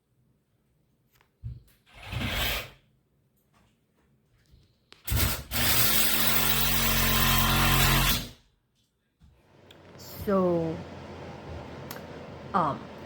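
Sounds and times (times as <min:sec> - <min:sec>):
power tool cutting into wall: 0:05.1 - 0:08.4.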